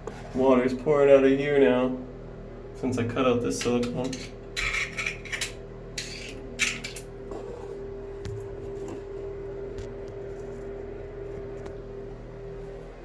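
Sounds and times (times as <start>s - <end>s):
steady hum: 0.0s - 13.0s
metal tool scraping tile: 4.0s - 7.0s.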